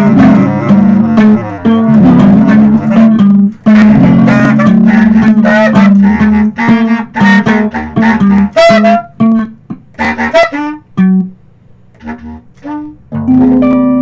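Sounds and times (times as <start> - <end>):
repeated low notes: 0.0 - 8.6
plucked guitar notes: 0.0 - 14.0.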